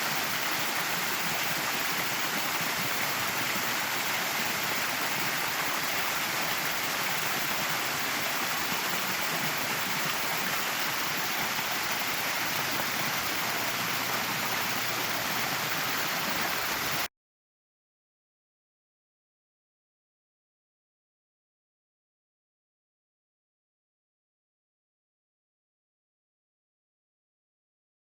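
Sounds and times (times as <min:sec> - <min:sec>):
small waterfall rushing: 0:00.0 - 0:17.1.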